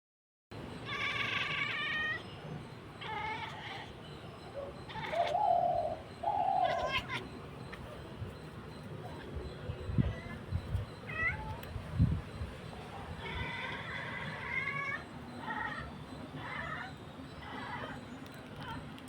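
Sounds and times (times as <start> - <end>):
cat meowing and chirping: 0.8 - 2.4, 3.0 - 8.0, 9.0 - 12.0, 12.8 - 18.9.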